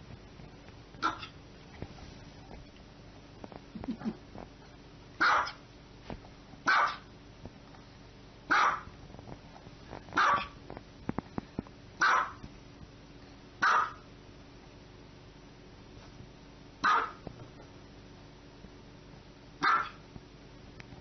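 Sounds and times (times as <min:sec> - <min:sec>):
small dog barking: 0:01.0 - 0:01.4, 0:05.2 - 0:05.6, 0:06.6 - 0:07.1, 0:08.5 - 0:08.9, 0:10.2 - 0:10.6, 0:12.0 - 0:12.4, 0:13.6 - 0:14.1, 0:16.8 - 0:17.2, 0:19.6 - 0:20.0.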